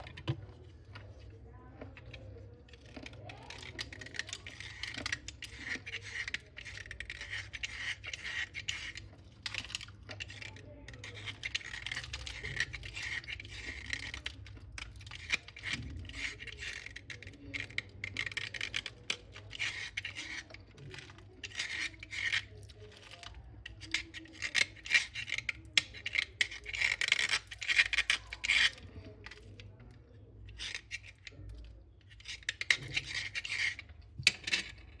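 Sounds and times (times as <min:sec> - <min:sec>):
slate pencils crunching: 0:01.8 - 0:29.6, 0:30.5 - 0:35.0.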